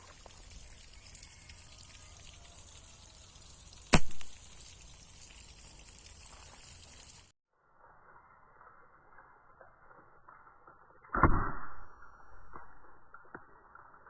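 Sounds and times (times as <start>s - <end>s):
faint outdoor background: 0.0s - 14.0s
slingshot snap: 3.9s - 4.4s.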